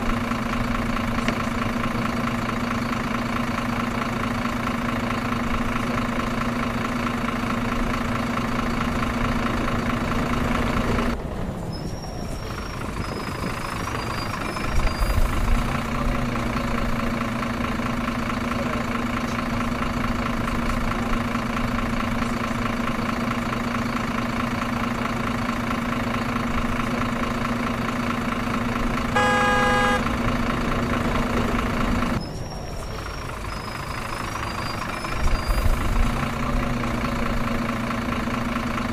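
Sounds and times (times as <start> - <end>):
truck engine running: 0.0 - 38.9
truck horn: 28.9 - 30.6.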